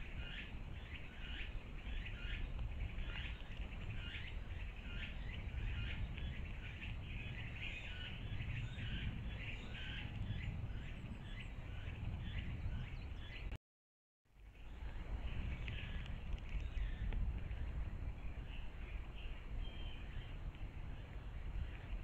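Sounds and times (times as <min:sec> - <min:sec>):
steady low rumble: 0:02.5 - 0:13.3.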